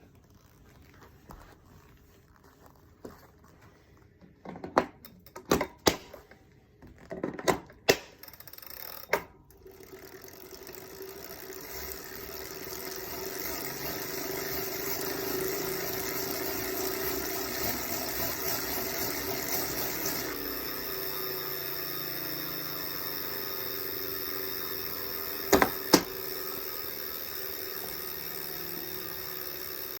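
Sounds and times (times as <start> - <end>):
flywheel whirring drone: 8.1 - 30.0
sharp clicks and knocks: 25.5 - 26.2.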